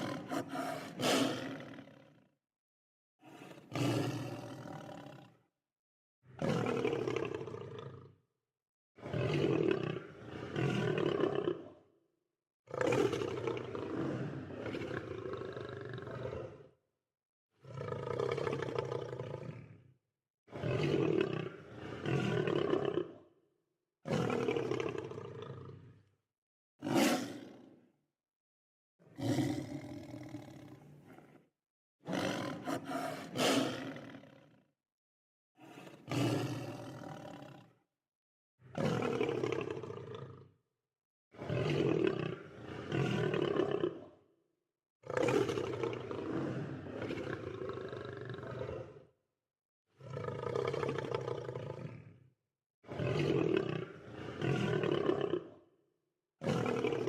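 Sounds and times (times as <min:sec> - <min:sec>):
lion roaring: 0:00.0 - 0:02.2, 0:03.2 - 0:05.4, 0:12.7 - 0:16.7, 0:17.6 - 0:19.8, 0:21.1 - 0:23.2, 0:26.8 - 0:27.6, 0:29.1 - 0:31.4, 0:32.1 - 0:34.6, 0:35.6 - 0:37.7, 0:41.4 - 0:44.1, 0:45.1 - 0:49.0, 0:50.0 - 0:52.2, 0:52.9 - 0:55.6.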